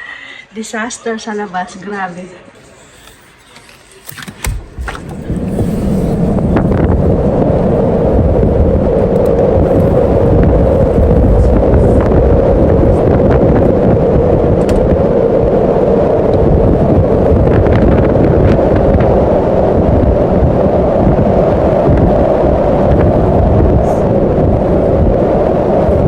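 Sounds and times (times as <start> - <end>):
wind buffeting the microphone: 4.2 - 26.0.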